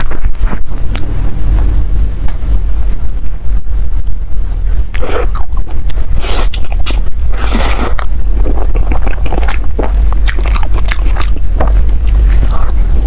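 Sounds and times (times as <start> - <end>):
steady low rumble: 0.0 - 13.0
wet chewing: 4.9 - 13.0.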